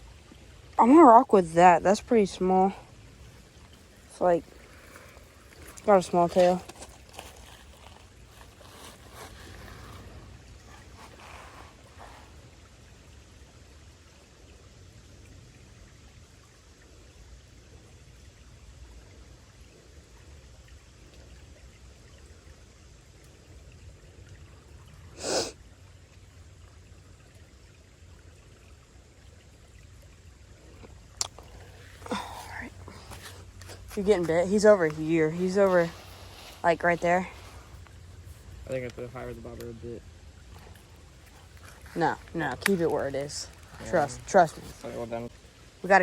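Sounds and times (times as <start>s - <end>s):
creek water hissing: 0.0s - 46.0s.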